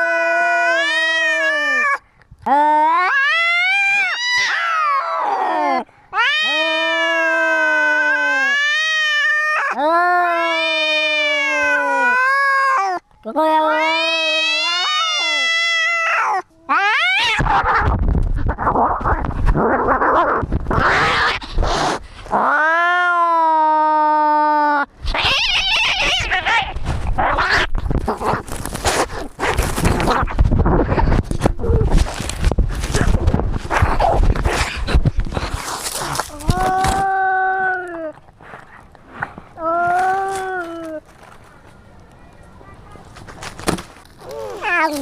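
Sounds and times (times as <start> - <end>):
cat yowling: 0.0 - 2.0, 2.8 - 17.9, 22.4 - 27.7.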